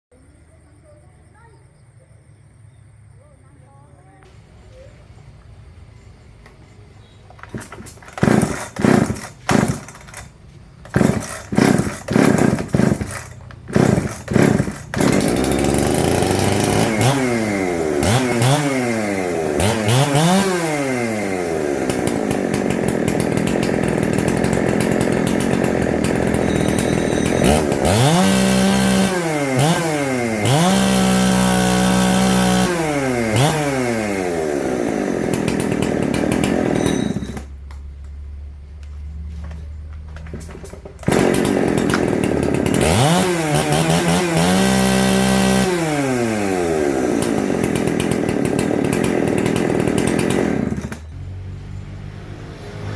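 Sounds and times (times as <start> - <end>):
chainsaw engine revving: 7.4 - 37.6, 39.3 - 51.4.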